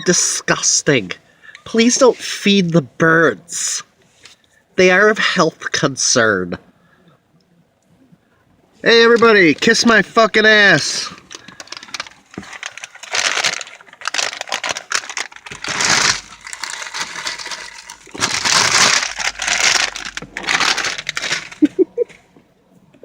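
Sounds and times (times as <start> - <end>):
chip bag crinkling: 9.0 - 21.8
potato chips being crushed: 11.1 - 21.7.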